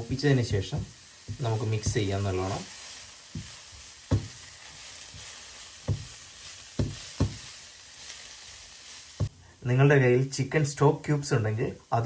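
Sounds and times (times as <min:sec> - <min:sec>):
vegetables sizzling in oil: 0:00.0 - 0:12.0
spatula knocking against pan: 0:03.4 - 0:04.4, 0:05.8 - 0:06.2, 0:06.8 - 0:07.5.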